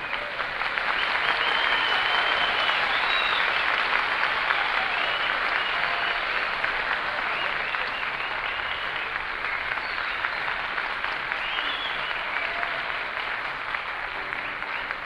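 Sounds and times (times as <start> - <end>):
audience applauding: 0.0 - 15.0
high whistles: 1.0 - 3.9, 7.3 - 10.6, 11.4 - 12.5.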